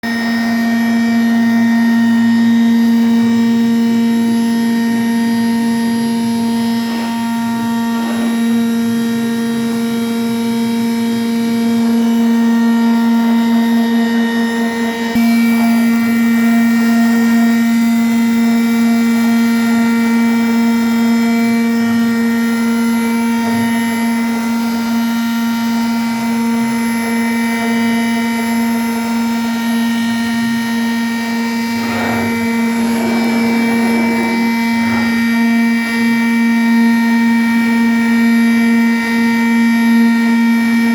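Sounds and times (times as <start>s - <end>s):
router spindle motor whine: 0.0s - 40.9s.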